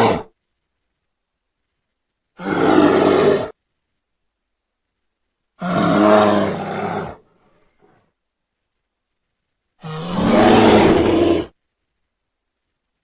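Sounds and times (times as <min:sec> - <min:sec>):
bear roaring: 0:00.0 - 0:00.3, 0:02.4 - 0:03.5, 0:05.6 - 0:07.2, 0:09.8 - 0:11.6.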